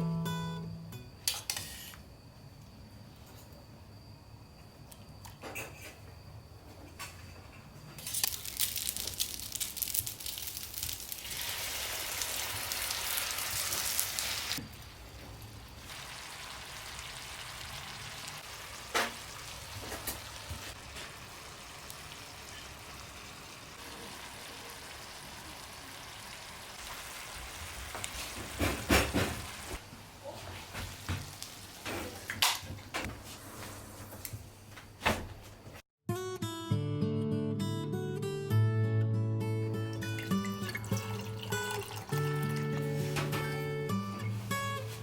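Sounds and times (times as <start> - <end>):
food sizzling in oil: 8.0 - 32.3.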